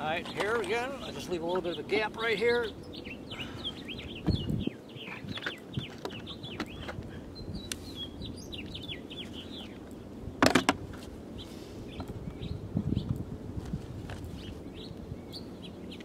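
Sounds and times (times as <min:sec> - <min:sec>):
small birds chirping: 0:00.0 - 0:13.2, 0:14.1 - 0:16.0.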